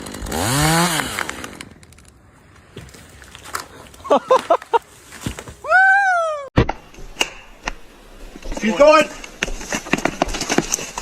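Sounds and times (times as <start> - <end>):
chainsaw revving: 0.0 - 1.7.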